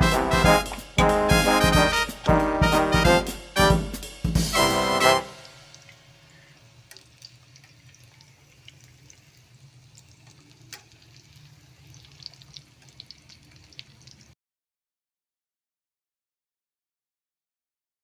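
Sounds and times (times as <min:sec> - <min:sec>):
rain drops ticking and dripping: 0:05.0 - 0:14.4.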